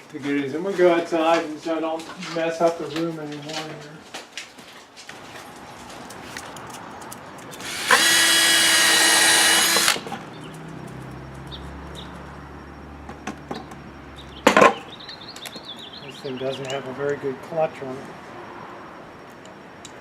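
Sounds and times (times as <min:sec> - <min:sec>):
electric drill running: 0:07.6 - 0:10.0.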